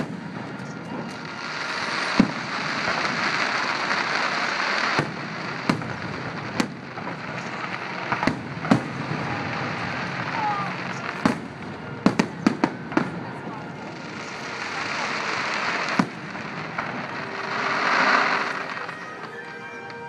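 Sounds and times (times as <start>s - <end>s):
steady hiss: 0.0s - 12.0s
fireworks bangs: 0.0s - 20.0s.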